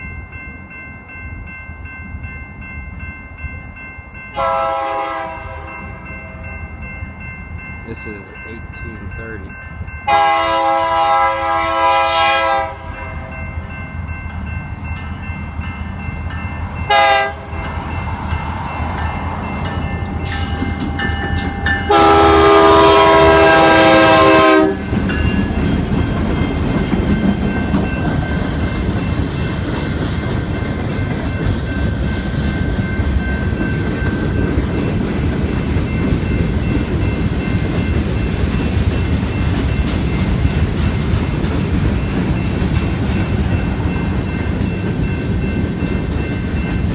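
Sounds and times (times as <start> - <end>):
train rumbling past: 0.0 - 46.9
train air horn blasts: 4.4 - 5.7, 10.1 - 12.9, 16.9 - 17.5, 21.9 - 24.8
wheels clacking on rail joints: 18.9 - 22.3, 24.8 - 46.9.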